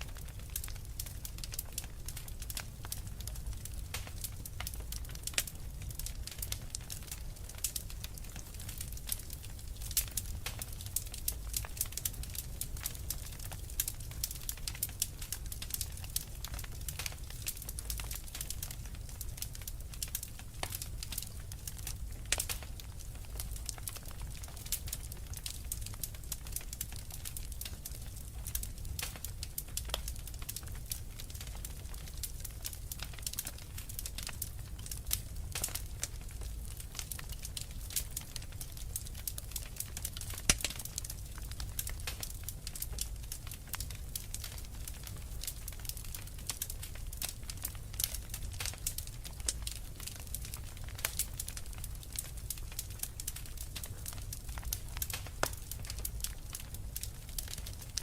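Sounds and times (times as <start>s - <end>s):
low rumble of burning: 0.0s - 58.0s
wood fire crackling: 0.0s - 58.0s.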